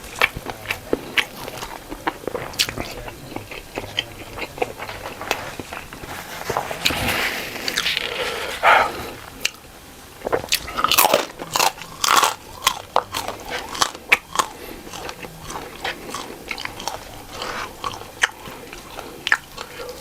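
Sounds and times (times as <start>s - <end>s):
person chewing crunchy food: 0.0s - 20.0s.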